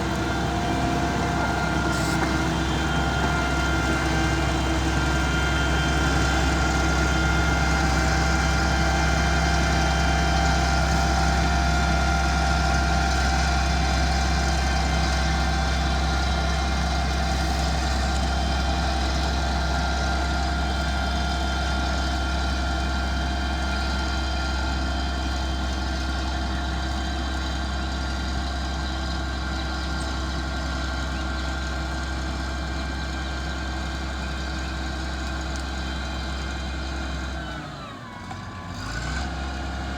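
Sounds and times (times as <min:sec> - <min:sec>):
diesel engine droning with whine: 0:00.0 - 0:39.9.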